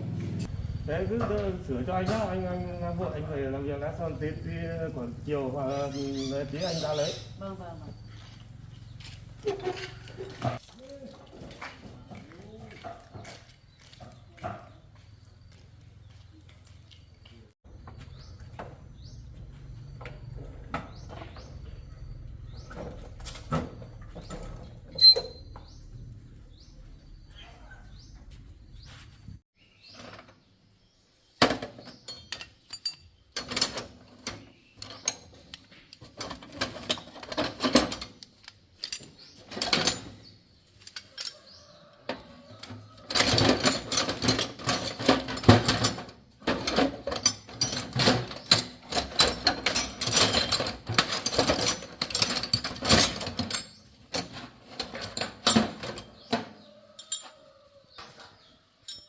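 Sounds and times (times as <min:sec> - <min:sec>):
hand tools clicking and knocking: 0:31.4 - 0:59.0.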